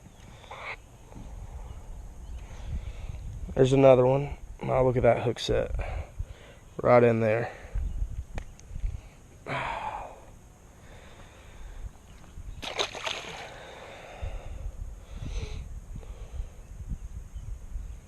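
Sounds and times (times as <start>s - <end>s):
wind rumble on microphone: 1.1s - 6.4s, 7.6s - 9.2s, 11.3s - 18.0s
fish splashing at surface: 12.6s - 13.5s.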